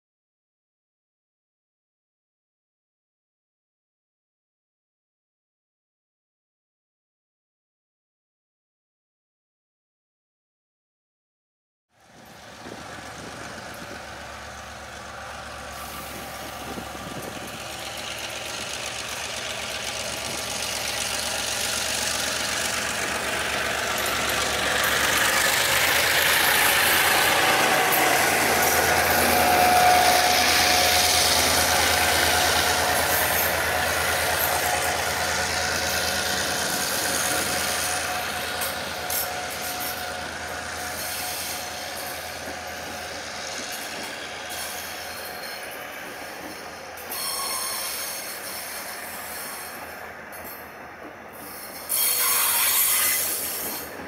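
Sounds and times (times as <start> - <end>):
low engine hum: 12.0 - 40.9
train passing: 12.0 - 54.0.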